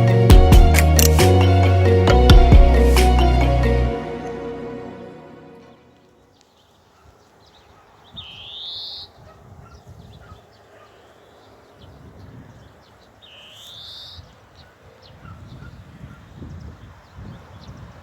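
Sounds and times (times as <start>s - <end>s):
other birds chirping: 5.6s - 18.0s.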